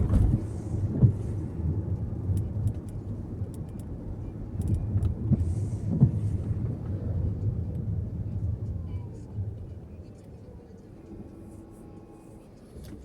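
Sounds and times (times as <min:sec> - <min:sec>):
car engine and road noise: 0:00.0 - 0:13.0
small clicks and ticks: 0:02.3 - 0:04.0.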